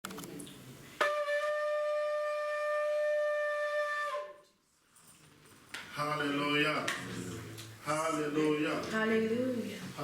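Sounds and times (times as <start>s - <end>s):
shofar blast: 1.0s - 4.4s.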